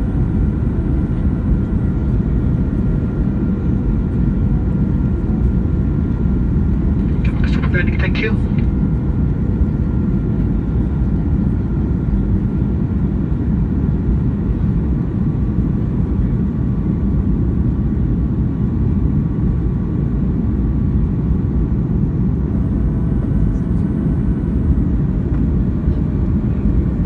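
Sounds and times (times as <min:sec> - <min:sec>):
airplane cabin rumble: 0:00.0 - 0:27.0
faint steady tones: 0:22.5 - 0:26.8.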